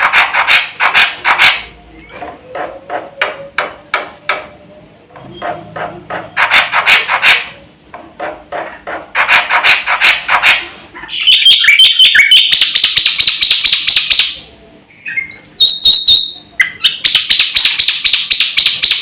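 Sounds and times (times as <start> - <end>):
bird giving harsh clacking notes: 0.0 - 1.7, 5.4 - 7.6, 8.2 - 14.4, 15.5 - 19.0.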